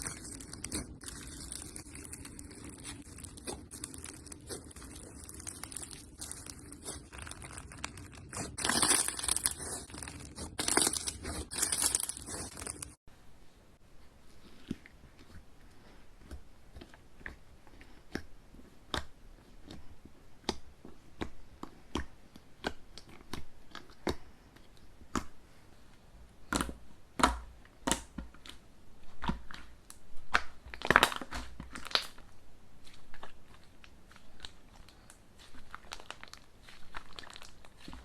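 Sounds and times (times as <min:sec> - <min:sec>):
slime squeezed by hand: 0:00.0 - 0:13.0.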